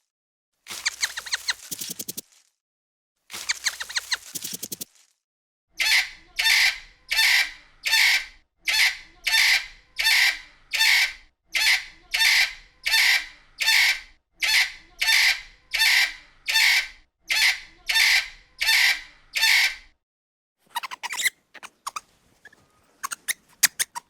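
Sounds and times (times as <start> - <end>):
bird harsh call: 5.8 - 19.9, 20.7 - 24.0.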